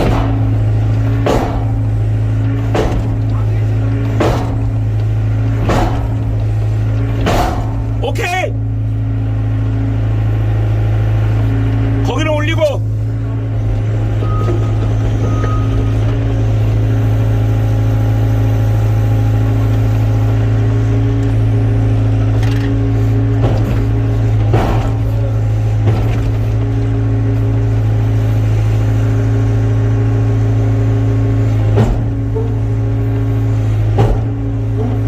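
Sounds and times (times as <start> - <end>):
sharp knocks: 0.0 - 0.6, 1.2 - 2.0, 2.6 - 3.4, 4.1 - 5.0, 5.6 - 6.5, 7.2 - 8.0, 23.4 - 25.2, 31.7 - 32.7, 33.9 - 35.0
excavator diesel engine running: 0.0 - 35.0.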